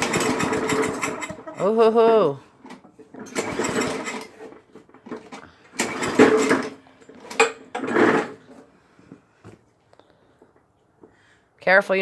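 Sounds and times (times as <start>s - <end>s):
small engine being pull-started: 0.0s - 1.8s, 2.6s - 8.6s.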